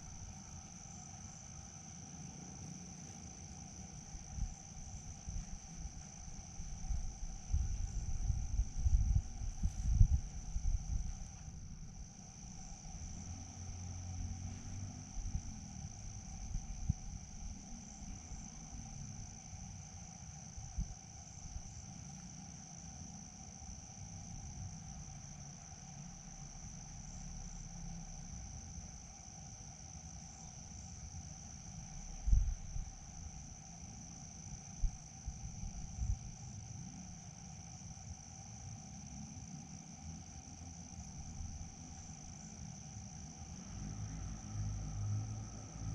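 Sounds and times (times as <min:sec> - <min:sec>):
crickets chirping: 0:00.0 - 0:45.9.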